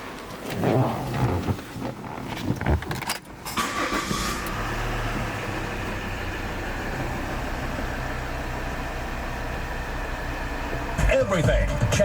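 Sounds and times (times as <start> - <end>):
car engine idling: 3.6 - 12.0.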